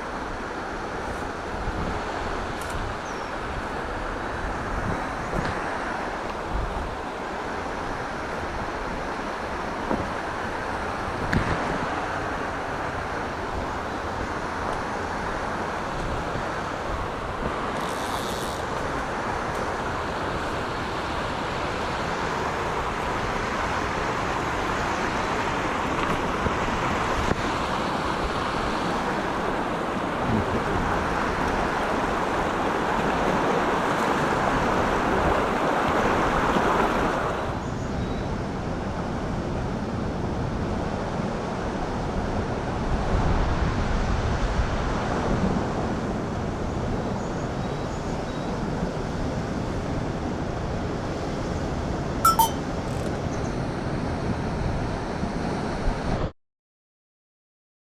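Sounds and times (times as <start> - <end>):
stream rushing over rocks: 0.0 - 17.8, 18.6 - 37.6.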